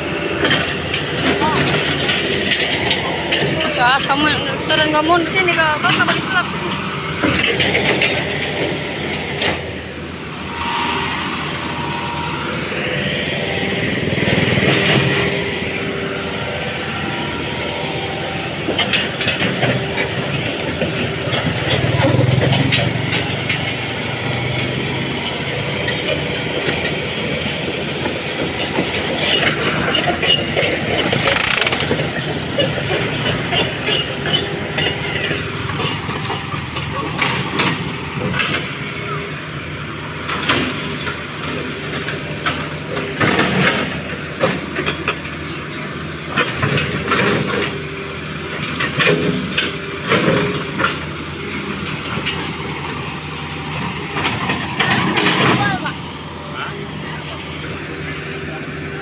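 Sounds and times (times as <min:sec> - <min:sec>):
excavator diesel engine running: 0:00.0 - 0:59.0
metallic clanks and rattles: 0:07.2 - 0:09.7.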